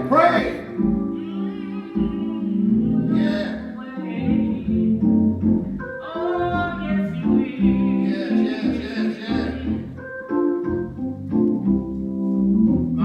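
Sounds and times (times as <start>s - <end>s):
person singing: 0.0s - 0.7s.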